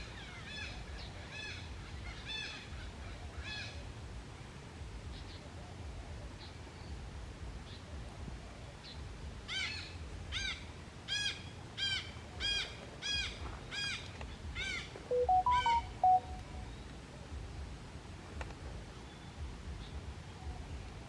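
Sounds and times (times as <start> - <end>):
bird calls rising and falling: 15.1 - 16.4
clear whistled bird notes: 15.1 - 16.8.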